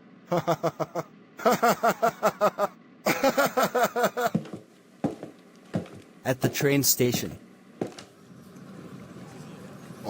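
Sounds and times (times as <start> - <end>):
person making laugh-like syllables: 0.3 - 4.3.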